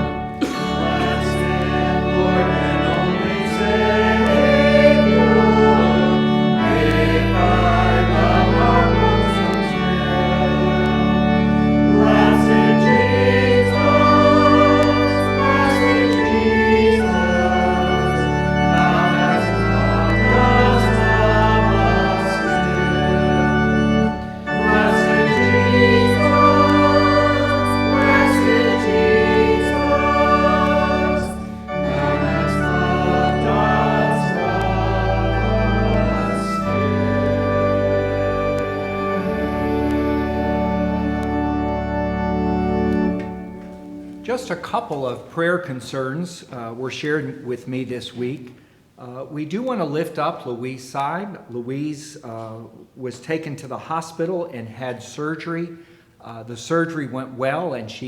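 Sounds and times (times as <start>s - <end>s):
voices singing: 0.0s - 45.1s
organ playing a hymn: 0.0s - 45.9s.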